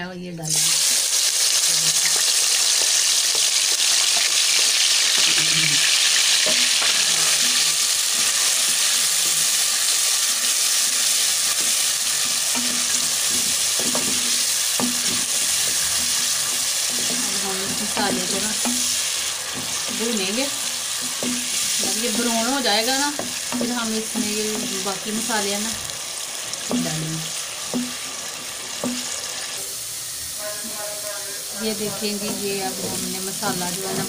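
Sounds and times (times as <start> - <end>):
food sizzling in hot oil: 0.5 - 34.0
wooden spoon scraping pot: 11.4 - 25.8, 31.6 - 34.0.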